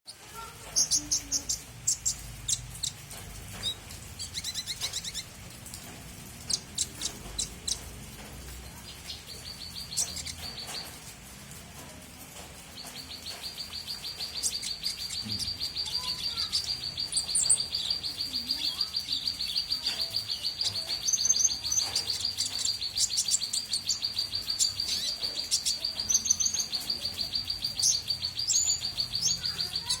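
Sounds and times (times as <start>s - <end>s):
small bird singing: 0.1s - 30.0s.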